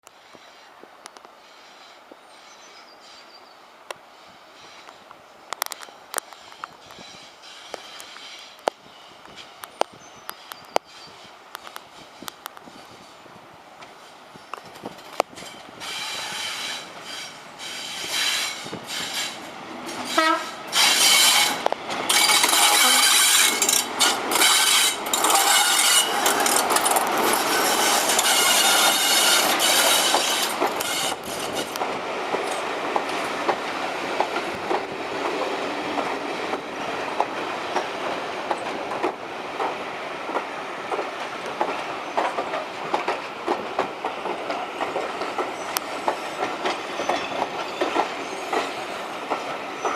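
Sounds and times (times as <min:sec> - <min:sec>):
train wheels clacking over rail joints: 0:13.8 - 0:49.9.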